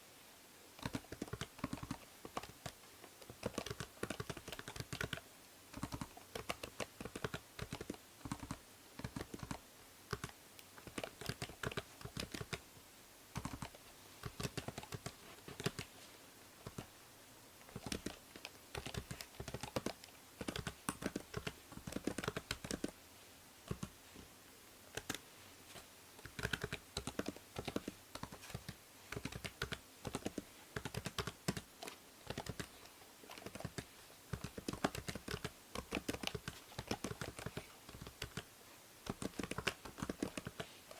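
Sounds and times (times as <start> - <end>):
faint microphone hiss: 0.0 - 40.9
keyboard keystroke clicks: 26.2 - 32.7.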